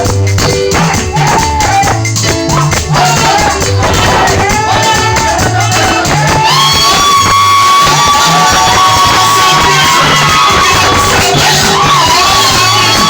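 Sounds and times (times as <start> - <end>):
bass line: 0.0 - 13.0
keyboard: 0.0 - 13.0
maracas shaking: 0.0 - 13.0
people singing: 0.8 - 13.0.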